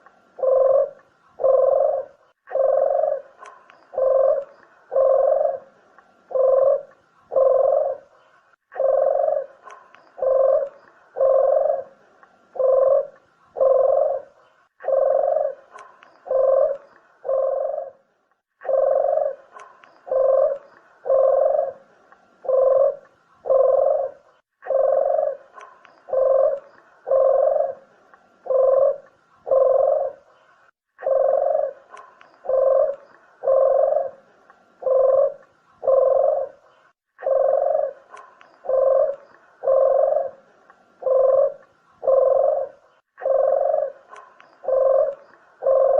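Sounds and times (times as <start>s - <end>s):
dove cooing: 0.0s - 30.4s, 31.0s - 45.9s.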